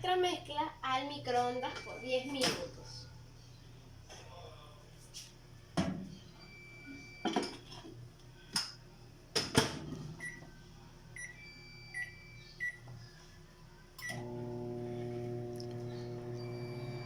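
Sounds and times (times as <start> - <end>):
microwave oven humming: 10.2 - 17.0.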